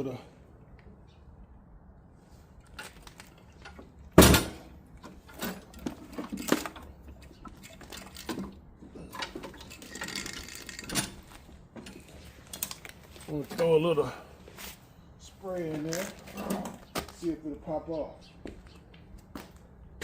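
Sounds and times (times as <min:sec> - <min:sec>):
metal tools knocking and rattling: 0:02.7 - 0:12.9
metal clank: 0:03.6 - 0:11.2.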